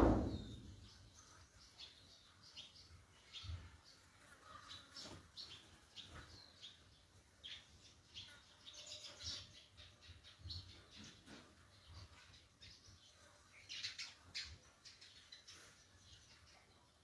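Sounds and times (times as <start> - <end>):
low bumps: 0.0 - 0.7
small birds chirping: 0.0 - 17.0.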